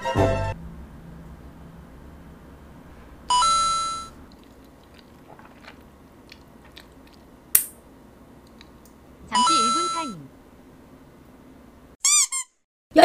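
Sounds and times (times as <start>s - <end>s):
two-note electronic chime: 3.3s - 4.2s
faint chewing and mouth clicks: 4.3s - 7.4s, 8.4s - 9.0s.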